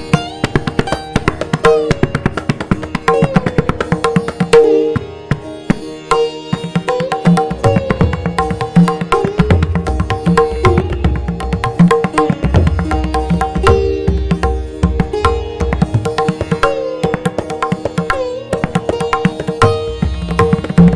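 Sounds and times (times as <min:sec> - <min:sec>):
sustained melodic accompaniment: 0:00.0 - 0:20.9
tabla playing: 0:00.0 - 0:20.9.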